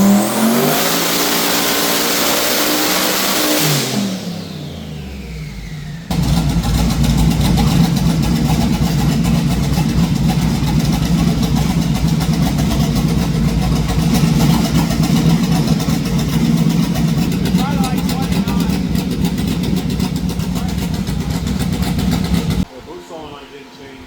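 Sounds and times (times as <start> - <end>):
car engine running loud: 0.0 - 22.7.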